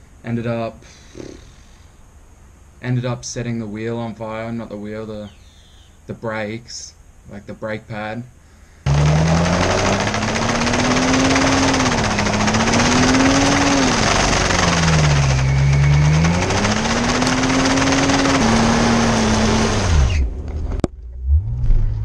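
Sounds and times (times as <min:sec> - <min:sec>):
car engine revving: 0:08.9 - 0:22.0
road noise: 0:08.9 - 0:22.0.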